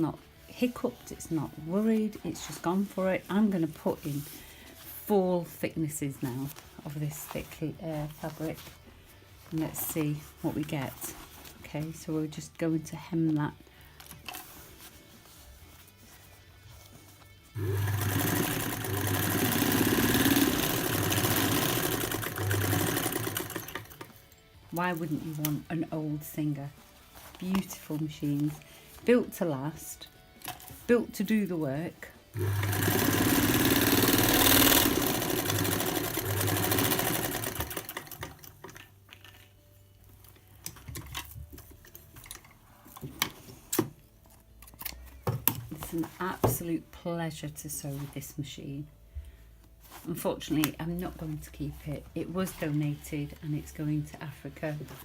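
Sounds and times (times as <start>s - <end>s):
sewing machine stitching: 17.6s - 24.1s, 32.4s - 38.5s.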